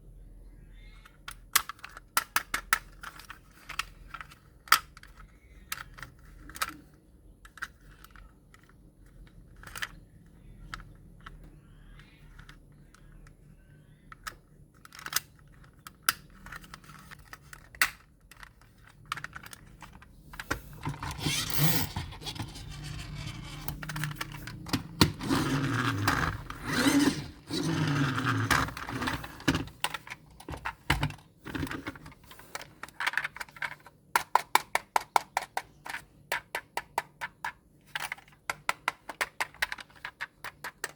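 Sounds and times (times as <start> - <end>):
plastic toys clicking: 1.0 - 13.3, 14.0 - 20.1, 32.6 - 40.9
packaging rustling and scraping: 20.4 - 29.5.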